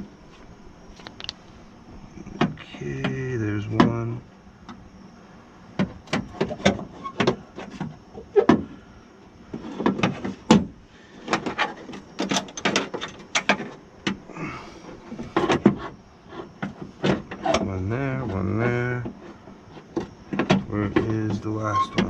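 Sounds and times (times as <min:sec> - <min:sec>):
bolts clicking and knocking: 0:11.3 - 0:14.2.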